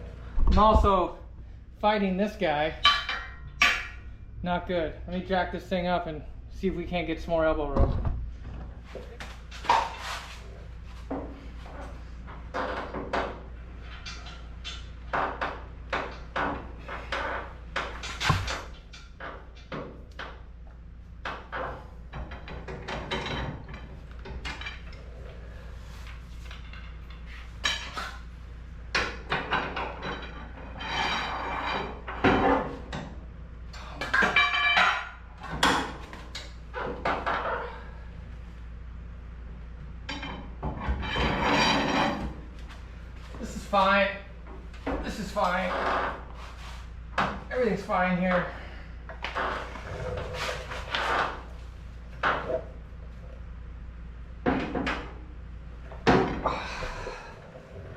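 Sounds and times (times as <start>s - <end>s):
steady low hum: 0.0s - 57.9s
metal tools clanking: 2.7s - 4.2s.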